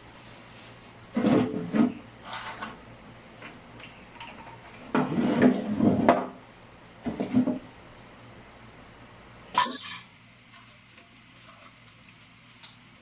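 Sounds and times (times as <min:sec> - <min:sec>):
hard objects rubbing and knocking: 0:01.1 - 0:02.8, 0:04.3 - 0:06.4, 0:07.0 - 0:07.7.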